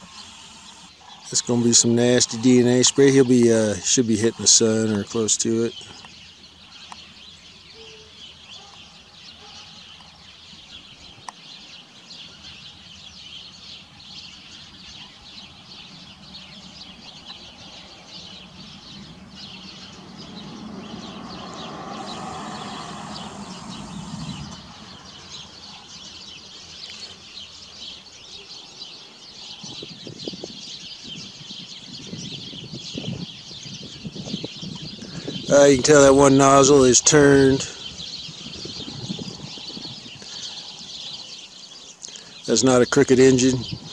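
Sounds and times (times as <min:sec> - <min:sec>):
small birds chirping: 0:00.0 - 0:43.9
broad low rumble: 0:18.3 - 0:25.9.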